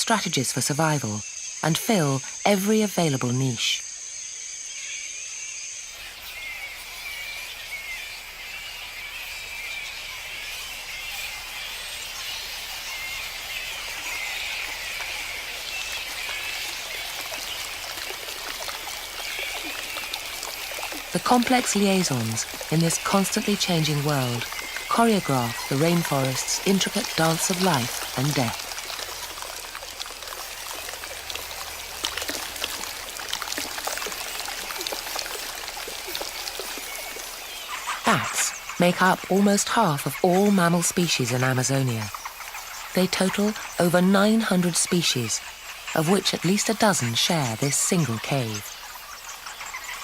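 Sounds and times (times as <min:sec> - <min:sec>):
rain dripping through foliage: 0:00.0 - 0:50.0
water running and trickling: 0:05.8 - 0:50.0.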